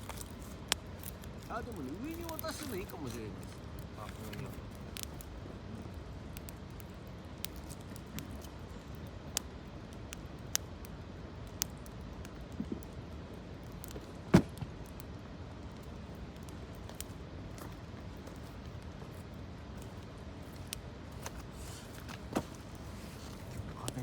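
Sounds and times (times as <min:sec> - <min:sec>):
campfire crackling: 0:00.0 - 0:24.0
low background noise: 0:00.0 - 0:24.0
sharp pops of fire: 0:06.3 - 0:17.2.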